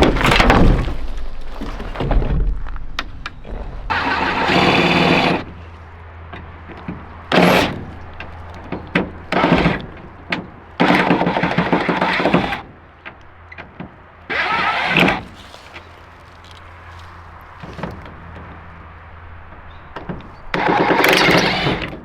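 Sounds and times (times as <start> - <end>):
scattered knocks: 6.3 - 15.3, 17.5 - 22.0.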